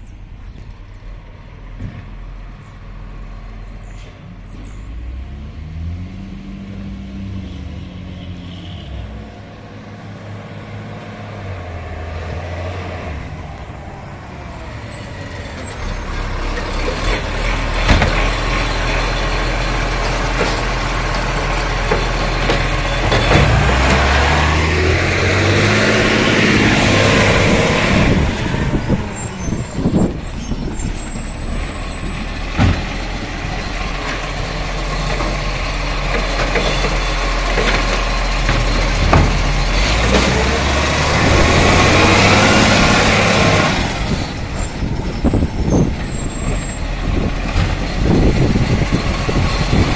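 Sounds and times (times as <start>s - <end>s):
garbage truck engine running: 13.2s - 49.9s.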